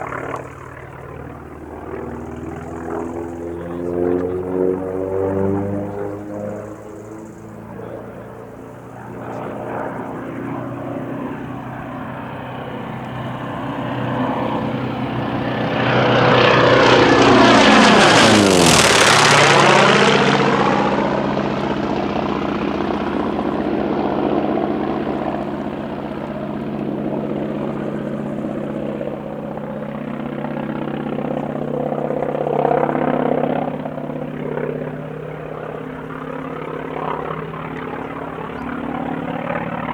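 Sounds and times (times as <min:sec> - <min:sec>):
propeller plane flyby: 0:00.0 - 0:39.9.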